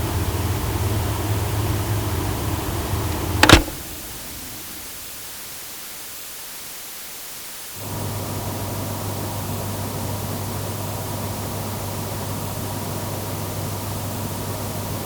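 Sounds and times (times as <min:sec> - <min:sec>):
loud click: 0:03.4 - 0:03.9
faint hiss: 0:03.4 - 0:15.0.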